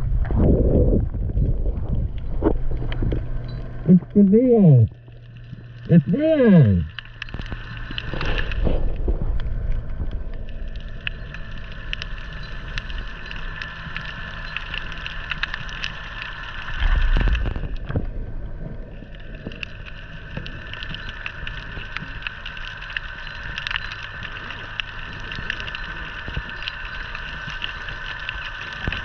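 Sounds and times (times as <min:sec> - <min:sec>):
wind buffeting microphone: 0:00.0 - 0:03.4.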